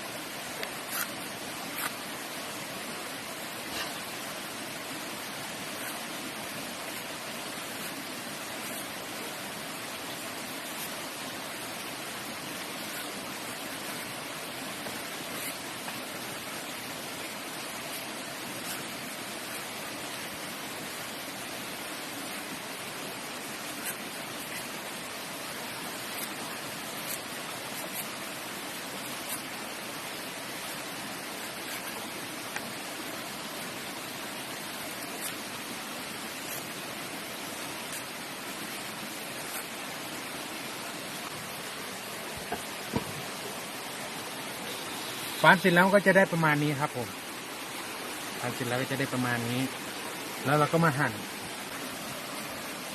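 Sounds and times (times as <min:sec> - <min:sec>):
running water: 0:00.0 - 0:52.9
knife shaving fruit peel: 0:00.8 - 0:02.0, 0:05.6 - 0:09.0, 0:15.3 - 0:15.7, 0:17.8 - 0:18.9, 0:23.7 - 0:24.8, 0:25.9 - 0:28.3, 0:29.0 - 0:29.6, 0:30.6 - 0:32.1, 0:34.8 - 0:35.5, 0:36.4 - 0:36.8, 0:37.8 - 0:39.8.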